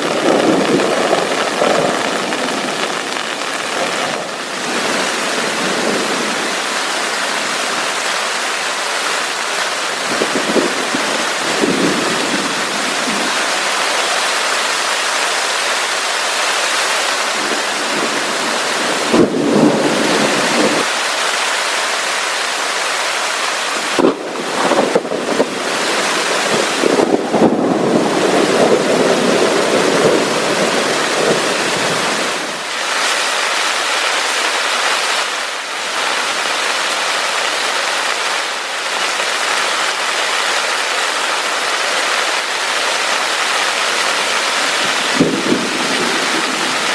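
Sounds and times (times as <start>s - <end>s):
thunder rumbling: 0.0s - 8.1s, 9.9s - 14.2s, 17.2s - 20.9s, 23.8s - 32.7s, 44.2s - 46.9s
heavy rain falling: 0.0s - 46.9s.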